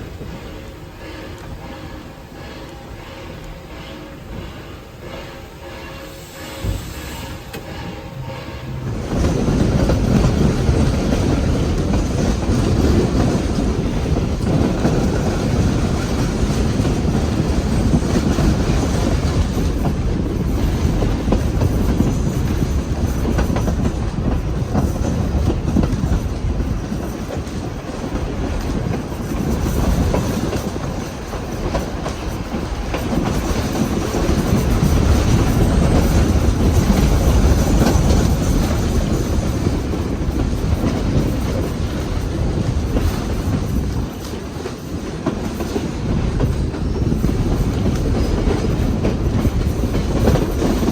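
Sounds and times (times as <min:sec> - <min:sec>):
train carriage low rumble: 0:00.0 - 0:50.9
wheels clickety-clack on rail joints: 0:00.0 - 0:50.9.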